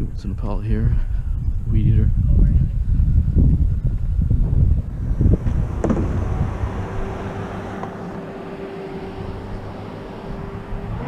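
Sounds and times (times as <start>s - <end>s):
steady drone: 3.1s - 11.0s.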